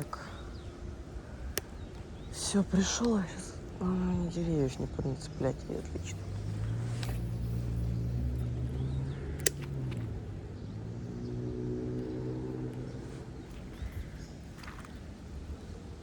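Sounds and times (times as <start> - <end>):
vehicle engine running: 0.0 - 15.8
sharp click: 9.4 - 10.1.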